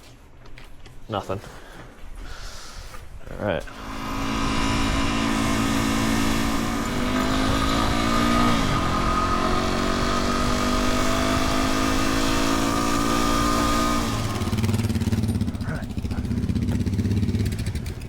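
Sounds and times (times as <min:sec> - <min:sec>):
motorcycle engine accelerating: 0:03.7 - 0:18.0.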